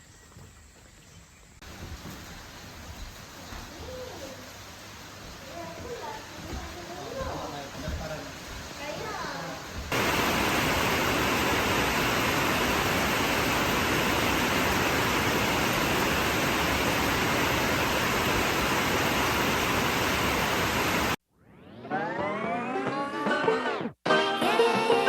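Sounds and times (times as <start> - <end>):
steady rushing noise: 9.9 - 21.2
music: 21.8 - 25.0.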